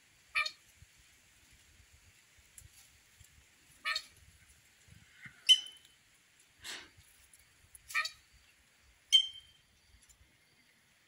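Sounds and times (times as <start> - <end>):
birds calling: 3.8 - 4.2, 5.1 - 6.0, 7.8 - 10.0.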